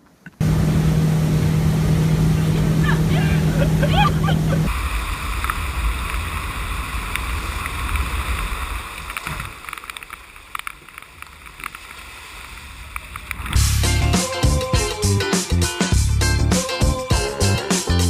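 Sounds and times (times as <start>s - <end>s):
water noise: 0.0s - 15.0s
wind rumbling on microphone: 0.4s - 13.7s.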